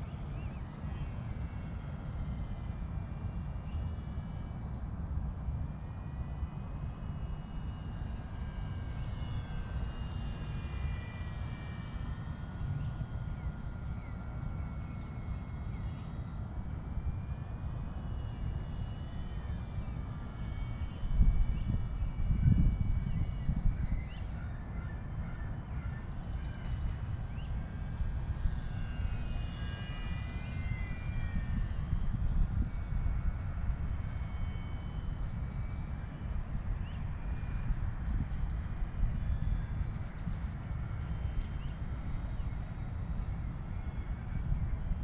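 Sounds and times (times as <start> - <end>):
model plane motor whine: 0.0 - 45.0
wind rumble on microphone: 16.8 - 45.0.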